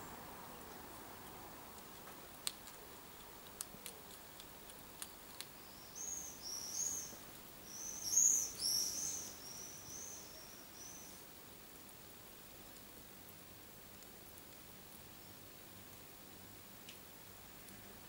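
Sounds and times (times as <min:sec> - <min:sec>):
hedgehog crunching food pellets: 0:00.9 - 0:08.6
bird chirping: 0:05.3 - 0:11.2.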